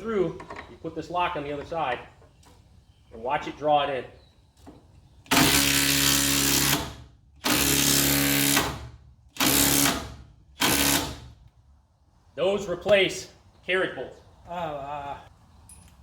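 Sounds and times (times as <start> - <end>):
power driver driving a screw into wood: 5.3 - 11.4.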